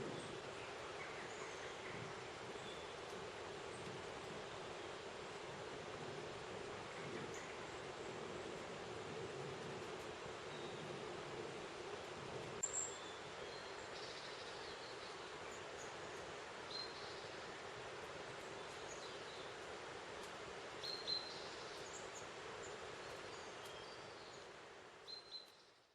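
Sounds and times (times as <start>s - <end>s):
steady background hiss: 0.0s - 25.9s.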